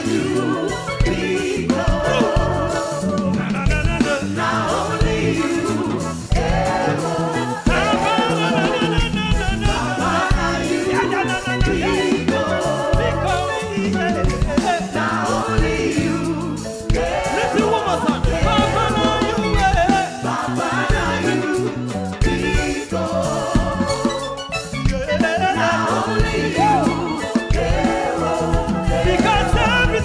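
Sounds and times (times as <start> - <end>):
band with bass-driven beat: 0.0 - 30.0
gospel singing: 0.0 - 30.0.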